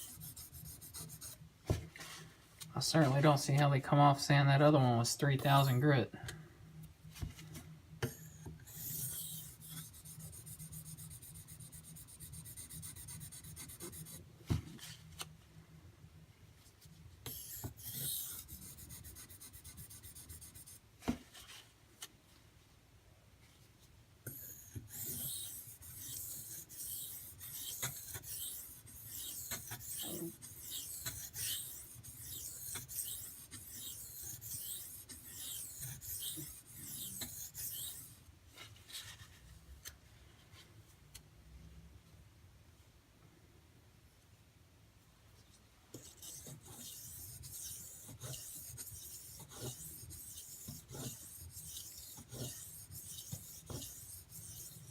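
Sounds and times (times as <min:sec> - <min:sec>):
knife scraping on whetstone: 0:17.3 - 0:20.5, 0:24.3 - 0:38.1, 0:46.0 - 0:54.9.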